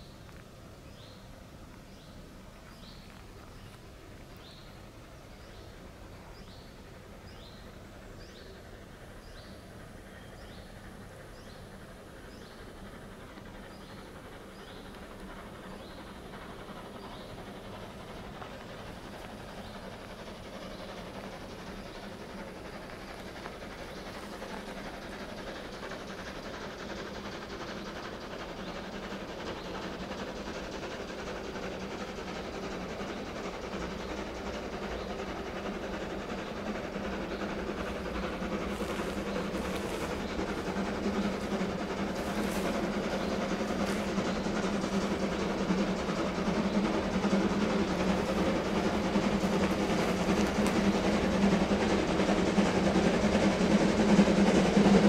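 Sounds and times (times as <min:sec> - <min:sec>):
train rumbling: 0:00.0 - 0:55.0
steady low rumble: 0:36.0 - 0:54.0.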